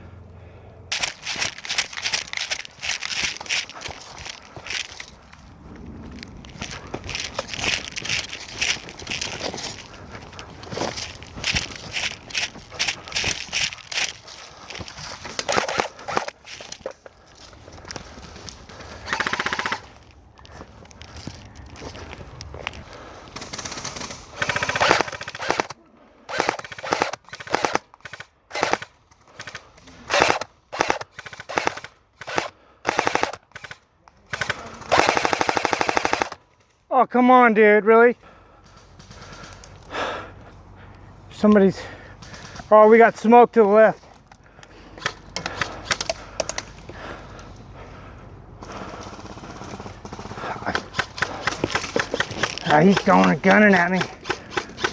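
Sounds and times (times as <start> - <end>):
airsoft gun full-auto bursts: 0.9 - 5.1, 6.7 - 16.8, 18.8 - 20.0, 23.2 - 36.4, 48.6 - 54.9
rustling noise: 0.9 - 25.7.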